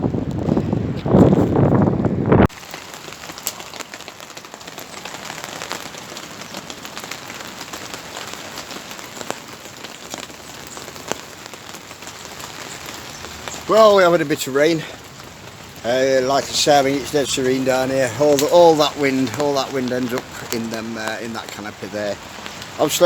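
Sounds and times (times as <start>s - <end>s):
steady rain falling: 0.0s - 23.0s
single raindrop hits: 16.4s - 23.0s.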